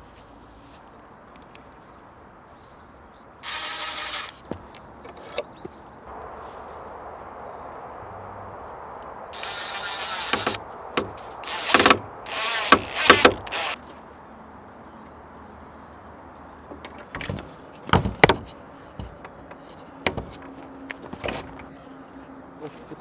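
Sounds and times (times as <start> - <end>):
power tool motor whirring: 3.4 - 5.6, 9.4 - 13.8
sharp knocks of wood or metal: 9.4 - 13.8, 16.7 - 21.7.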